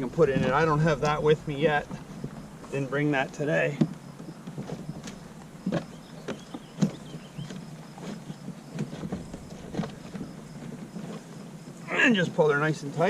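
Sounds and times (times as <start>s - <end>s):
plastic kayak seat knocking: 3.7s - 11.2s.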